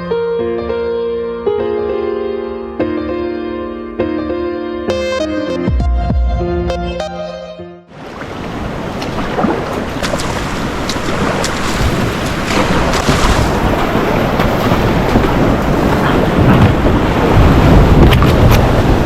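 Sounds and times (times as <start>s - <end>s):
river water rushing: 8.0s - 19.0s
wind buffeting microphone: 8.1s - 19.0s
low rumbling: 8.6s - 19.0s
sharp splash-like clicks: 8.9s - 16.2s.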